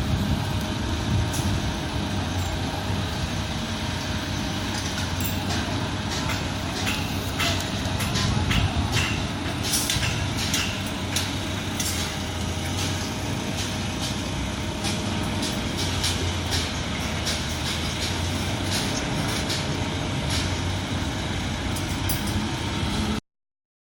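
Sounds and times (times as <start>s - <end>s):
diesel machinery droning: 0.0s - 23.2s
metallic clanks and knocks: 4.7s - 20.6s.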